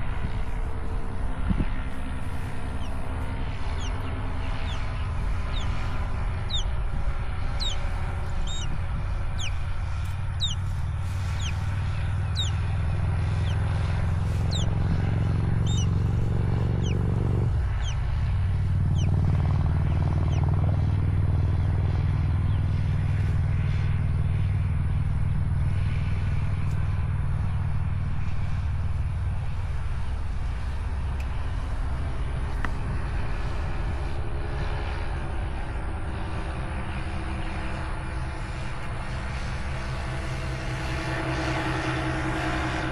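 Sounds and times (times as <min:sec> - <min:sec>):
steady low rumble: 0:00.0 - 0:42.9
high falling bird chirps: 0:03.6 - 0:06.8, 0:07.4 - 0:12.7, 0:14.3 - 0:14.8, 0:15.6 - 0:16.1, 0:16.7 - 0:17.0, 0:17.7 - 0:18.0, 0:18.9 - 0:19.1, 0:20.2 - 0:20.5.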